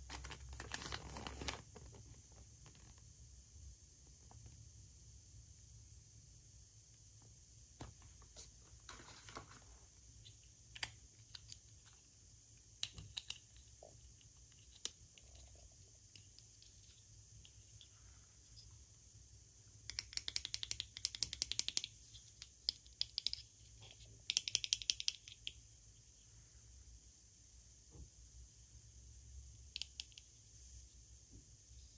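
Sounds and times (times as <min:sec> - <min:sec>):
small objects clicking: 0:19.9 - 0:23.5, 0:24.2 - 0:25.6.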